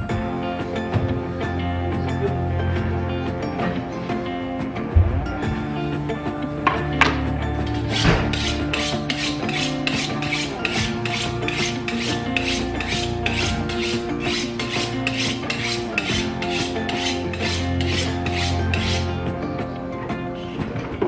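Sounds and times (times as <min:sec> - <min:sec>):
background music with chords: 0:00.0 - 0:21.0
peeler scraping potatoes: 0:07.7 - 0:19.2.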